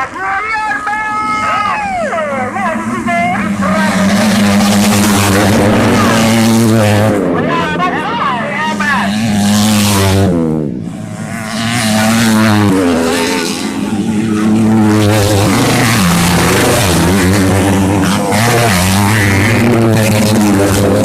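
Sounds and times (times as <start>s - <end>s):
racing motorcycle engines: 0.0s - 21.0s.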